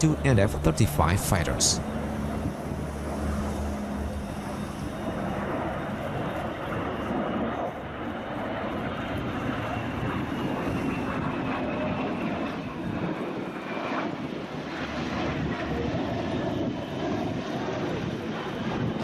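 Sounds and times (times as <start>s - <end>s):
aircraft engine running: 0.0s - 19.0s.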